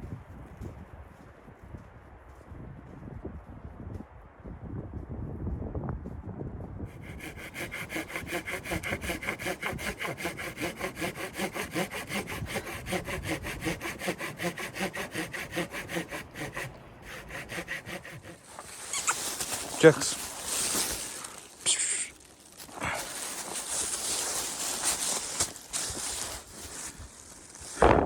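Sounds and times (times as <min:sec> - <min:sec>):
hand saw cutting wood: 0:06.9 - 0:27.7.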